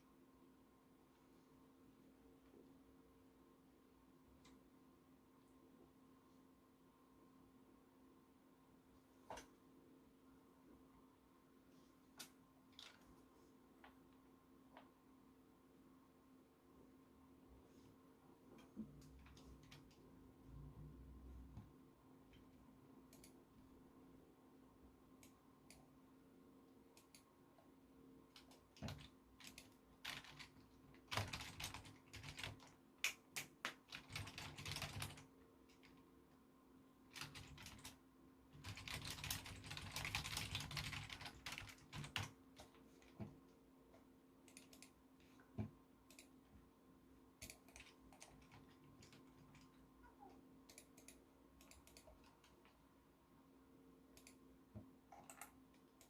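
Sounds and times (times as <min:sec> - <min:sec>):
faint steady hum: 0:00.0 - 0:56.0
typing on computer keyboard: 0:28.3 - 0:36.0, 0:37.1 - 0:42.8, 0:47.4 - 0:49.7.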